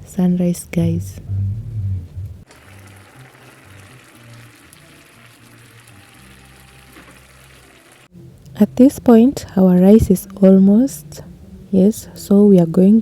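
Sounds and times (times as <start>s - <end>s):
faint background music: 0.0s - 13.0s
pot of water boiling: 2.4s - 8.1s.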